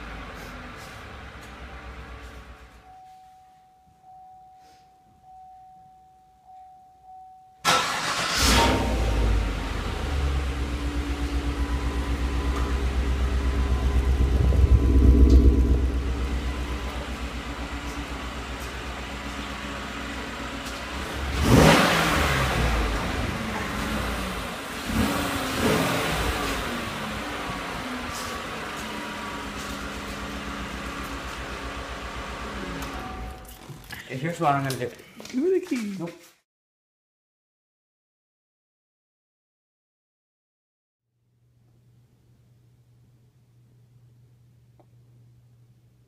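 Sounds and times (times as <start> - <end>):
car engine idling and revving: 0.0 - 2.8, 7.7 - 33.5.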